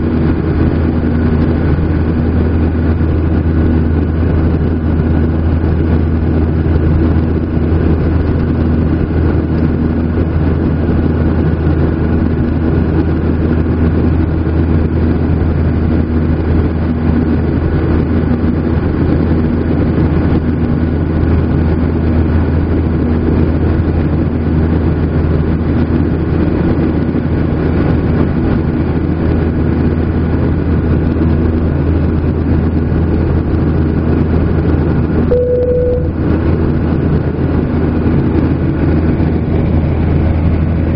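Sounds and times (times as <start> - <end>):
jet engine drone in cabin: 0.0 - 40.9
brief single tone: 35.3 - 36.5.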